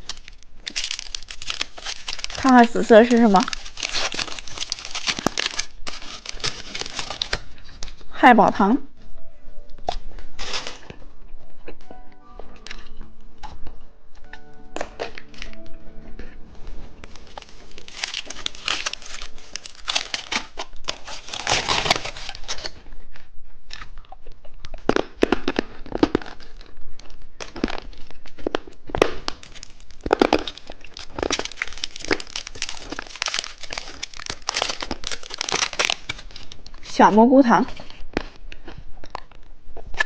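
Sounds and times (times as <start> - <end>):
plastic packaging crinkling: 0.0 - 8.1, 9.7 - 11.1, 17.0 - 22.8, 24.9 - 37.0.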